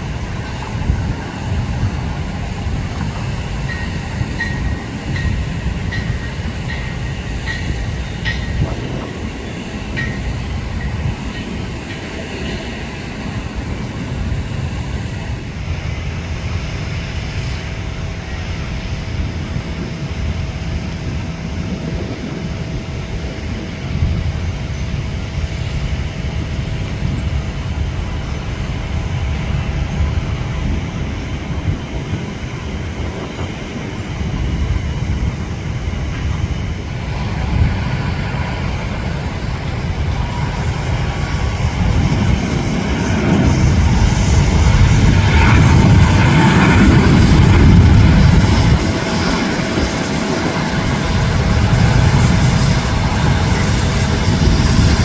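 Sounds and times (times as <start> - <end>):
distant jet engines rumbling: 0.0 - 55.0.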